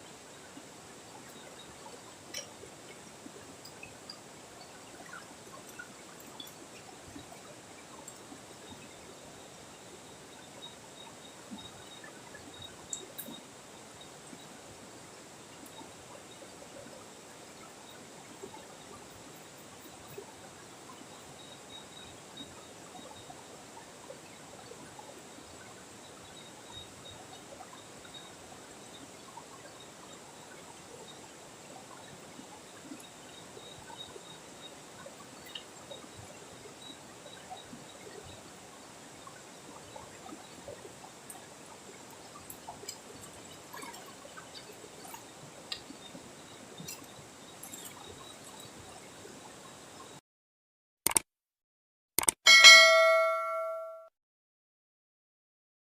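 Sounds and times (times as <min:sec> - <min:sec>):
faint high steady tone: 0:00.0 - 0:43.0, 0:52.5 - 0:54.1
small drips and ticks: 0:00.0 - 0:50.2
river water flowing: 0:29.5 - 0:49.9.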